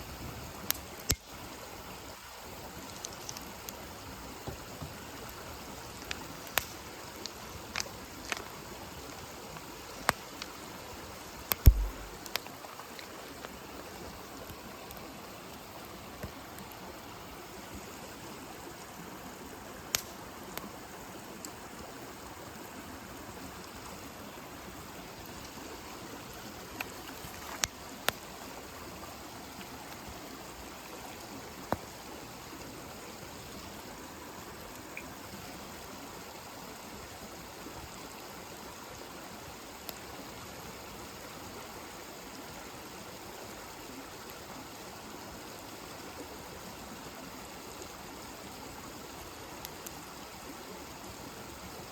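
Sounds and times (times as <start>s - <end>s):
campfire hissing: 0.0s - 51.9s
fire pops and crackles: 0.4s - 1.4s, 4.4s - 8.6s, 11.4s - 12.5s, 19.9s - 20.7s.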